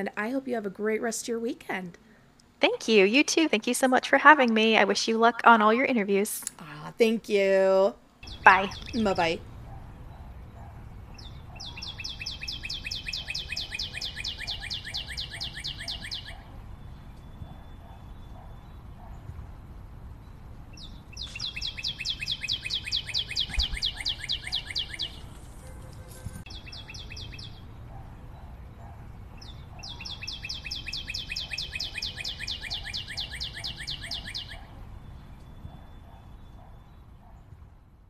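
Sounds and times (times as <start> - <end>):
outdoor background hiss: 0.0 - 38.0
songbird trilling: 8.2 - 9.4, 11.2 - 16.5, 20.8 - 25.3, 26.5 - 27.7, 29.4 - 34.7.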